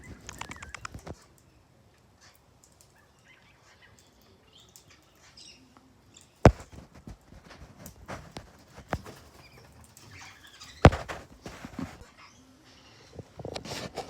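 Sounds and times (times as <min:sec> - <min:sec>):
faint bird chirps: 0:00.0 - 0:06.7, 0:08.7 - 0:13.3
sharp knock: 0:06.5 - 0:06.7, 0:10.9 - 0:11.2
bird pecking taps: 0:06.5 - 0:09.4, 0:10.8 - 0:12.0.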